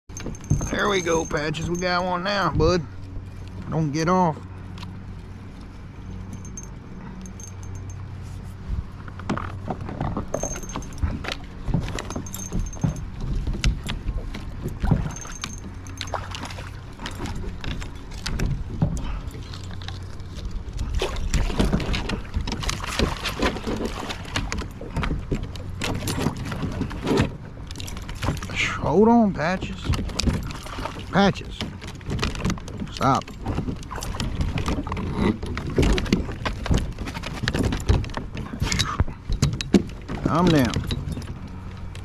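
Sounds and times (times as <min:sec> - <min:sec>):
metallic clinks: 0:00.1 - 0:02.4, 0:06.1 - 0:08.2, 0:10.3 - 0:11.2, 0:11.9 - 0:13.9, 0:14.9 - 0:18.2.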